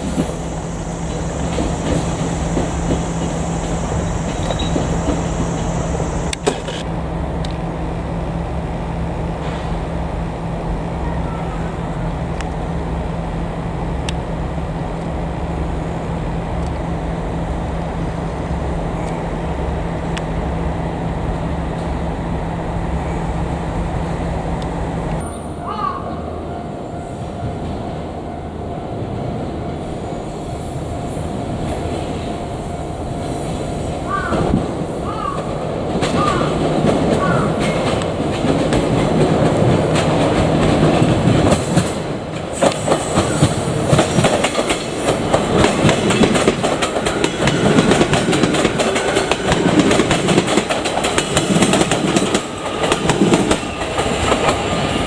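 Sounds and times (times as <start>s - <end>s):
electric train passing: 0.0s - 55.0s.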